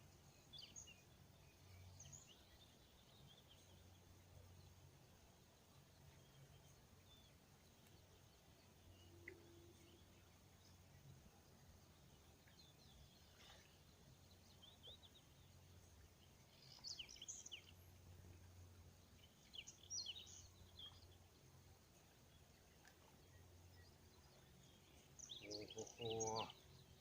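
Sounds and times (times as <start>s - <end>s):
low steady hum: 0.0s - 27.0s
bird chirps: 19.2s - 21.2s, 23.3s - 27.0s.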